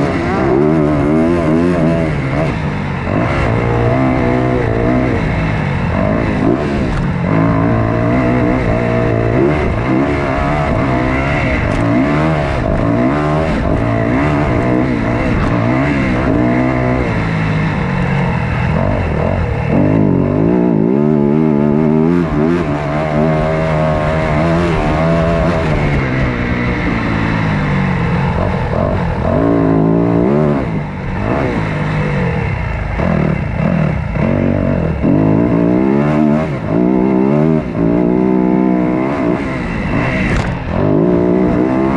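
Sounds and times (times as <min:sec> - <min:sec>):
dirt bike engines revving: 0:00.0 - 0:41.9.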